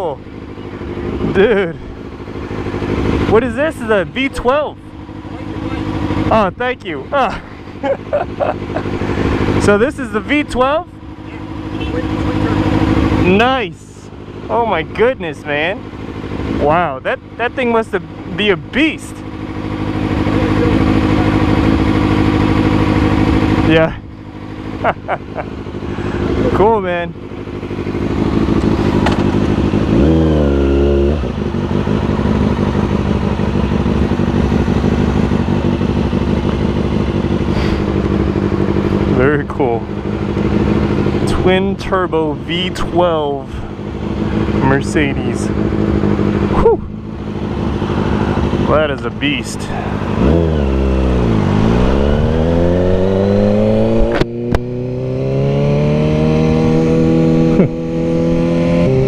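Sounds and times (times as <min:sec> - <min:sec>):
motorcycle engine idling: 0:00.0 - 0:55.2, 0:56.1 - 0:58.3
motorcycle engine revving: 0:00.0 - 0:59.0
sharp exhaust cracks: 0:17.2 - 0:55.1.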